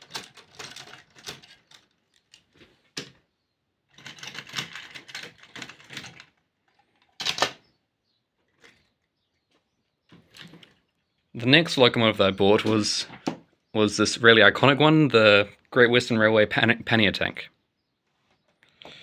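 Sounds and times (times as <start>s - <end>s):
plastic model train rattling: 0.0s - 2.6s, 3.9s - 7.6s.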